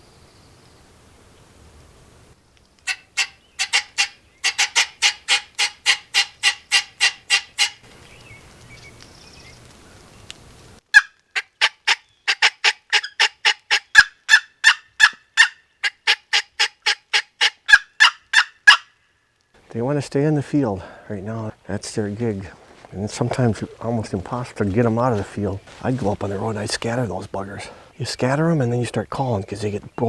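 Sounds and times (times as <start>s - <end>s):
turkey yelping: 2.8s - 7.8s, 10.9s - 19.0s.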